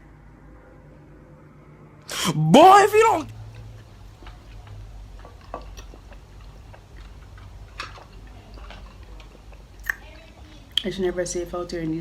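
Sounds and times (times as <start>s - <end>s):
steady low hum: 0.0s - 12.0s
mouth chewing clicks and smacks: 3.4s - 11.0s.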